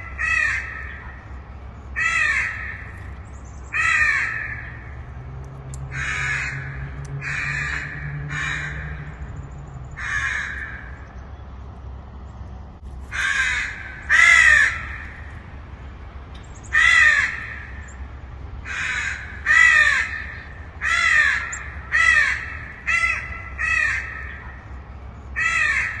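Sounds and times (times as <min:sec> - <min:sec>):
crow cawing: 0:00.0 - 0:01.2, 0:02.0 - 0:03.0, 0:03.7 - 0:05.0, 0:05.9 - 0:09.3, 0:10.0 - 0:11.1, 0:13.1 - 0:15.3, 0:16.7 - 0:17.9, 0:18.6 - 0:24.7, 0:25.4 - 0:26.0.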